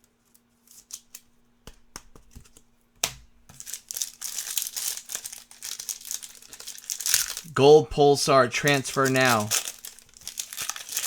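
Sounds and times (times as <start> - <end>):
faint steady hum: 0.0 - 11.0
card pack wrapper crinkling and tearing: 3.5 - 7.6, 8.2 - 11.0.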